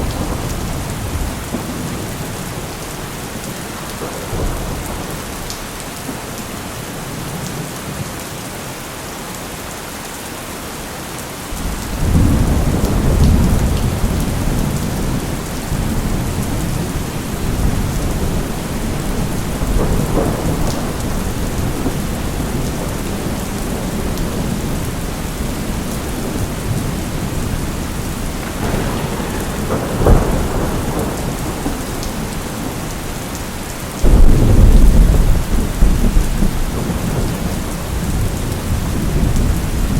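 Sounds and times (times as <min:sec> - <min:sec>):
thunder crack: 0:00.0 - 0:02.7, 0:11.6 - 0:24.8, 0:25.4 - 0:39.9
thunder rumbling: 0:00.0 - 0:05.7, 0:11.5 - 0:39.9
heavy rain: 0:00.0 - 0:39.9.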